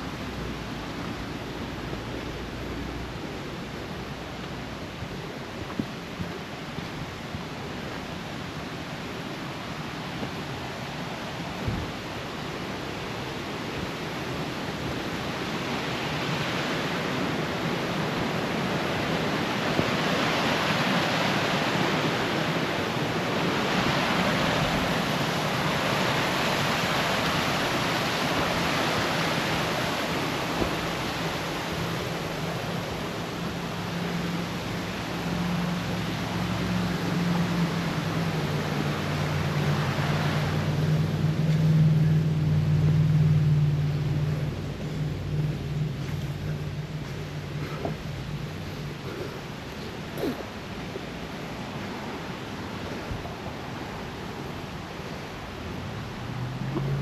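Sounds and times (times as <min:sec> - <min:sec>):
rushing creek water: 0:00.0 - 0:57.0.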